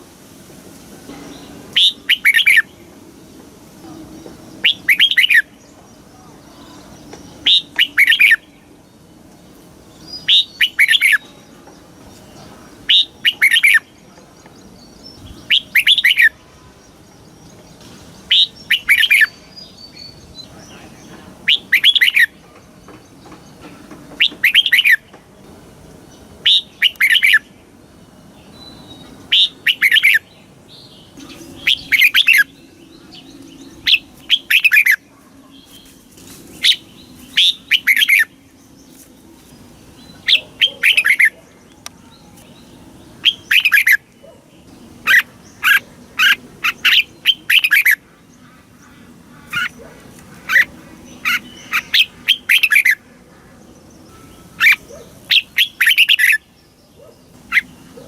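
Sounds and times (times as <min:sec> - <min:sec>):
bird singing whistled phrases: 0:04.6 - 0:05.6, 0:07.4 - 0:08.4, 0:15.2 - 0:16.4, 0:21.5 - 0:22.3, 0:26.4 - 0:27.5, 0:28.5 - 0:30.3, 0:31.2 - 0:32.6, 0:37.4 - 0:38.3, 0:43.2 - 0:44.0.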